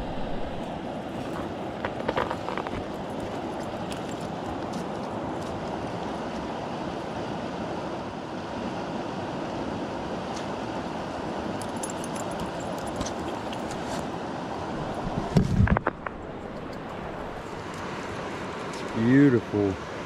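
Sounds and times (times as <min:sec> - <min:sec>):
outdoor rushing noise: 0:00.0 - 0:03.0.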